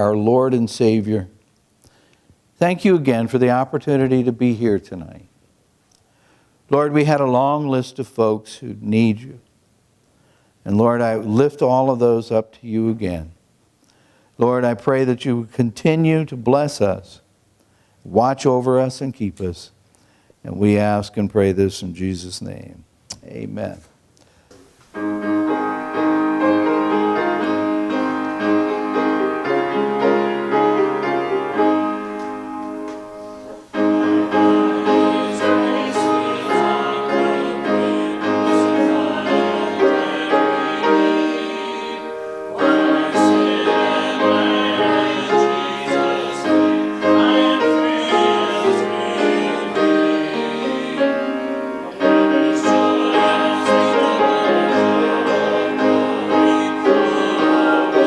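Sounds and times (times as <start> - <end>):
keyboard playing slow chords: 25.0 - 58.0.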